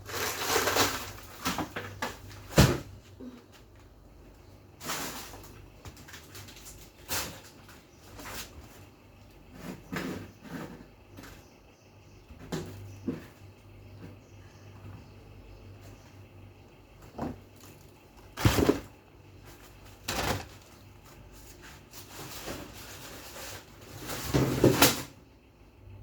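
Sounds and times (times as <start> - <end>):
faint steady hum: 0.0 - 26.0
objects being handled and moved: 17.0 - 25.0.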